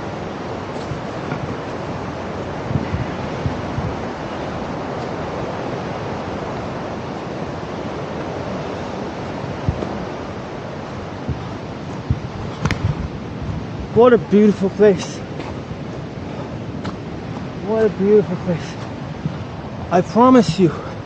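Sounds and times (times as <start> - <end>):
waterfall rushing: 0.0 - 21.0
low thumps: 11.2 - 14.0.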